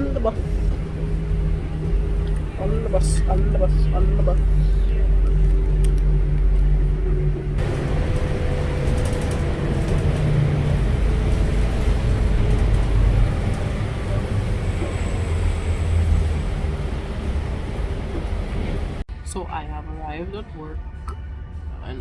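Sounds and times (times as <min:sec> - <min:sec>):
bus engine rumble: 0:00.0 - 0:21.6.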